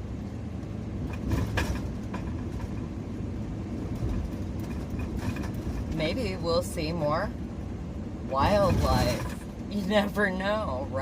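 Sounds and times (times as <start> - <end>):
van engine and road noise: 0.0 - 11.0
knocks and rattles: 1.0 - 6.3.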